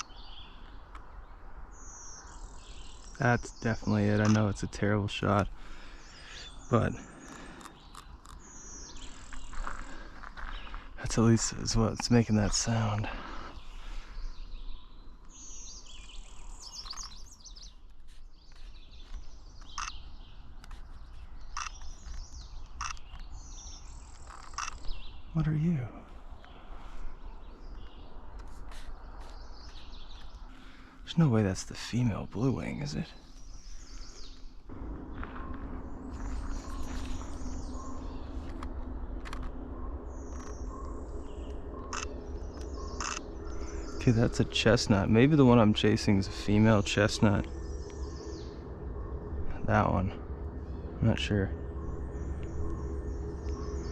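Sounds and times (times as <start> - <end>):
high buzzy bird song: 0.0 - 53.9
low background rumble: 0.0 - 53.9.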